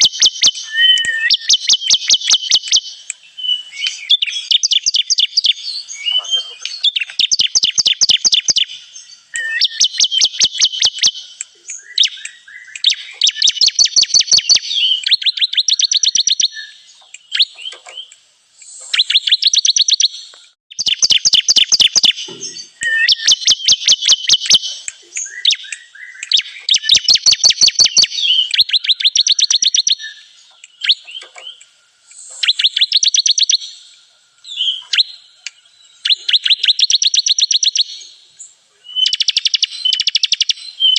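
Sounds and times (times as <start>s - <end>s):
bird song high chirps: 0.0s - 40.9s.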